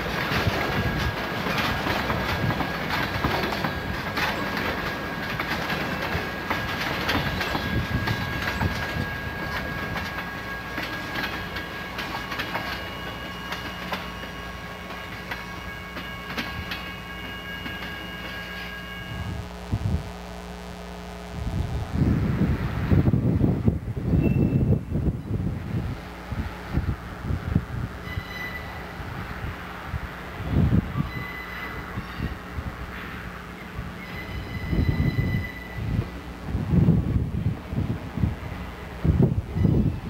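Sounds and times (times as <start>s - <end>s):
freight train wheels clacking: 0.0s - 19.2s.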